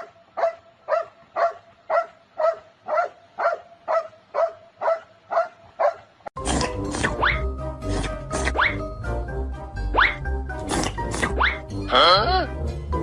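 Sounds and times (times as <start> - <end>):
dog barking: 0.0 - 6.1.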